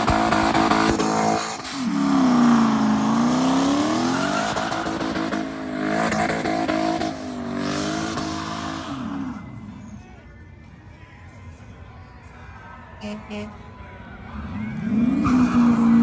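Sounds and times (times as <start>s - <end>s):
vehicle engine revving hard: 0.0s - 9.4s, 14.5s - 16.0s.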